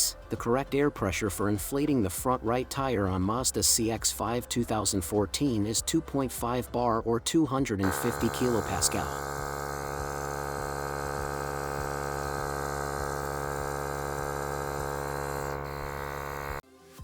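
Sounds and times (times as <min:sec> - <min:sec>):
tyre inflator compressor humming: 0:07.8 - 0:16.6.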